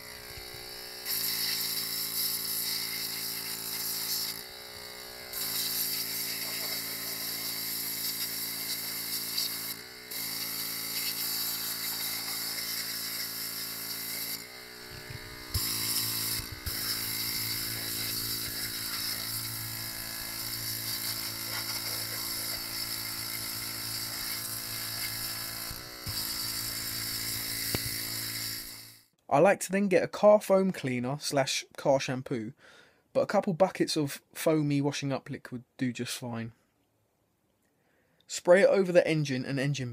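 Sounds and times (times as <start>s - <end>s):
water spray hissing: 0.0s - 4.4s, 5.3s - 28.9s
pressure washer motor whining: 0.0s - 29.0s.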